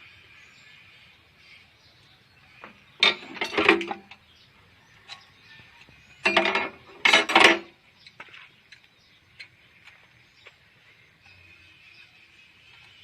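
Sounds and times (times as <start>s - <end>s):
metal tools clanking and scraping: 2.6s - 4.2s, 6.2s - 7.7s.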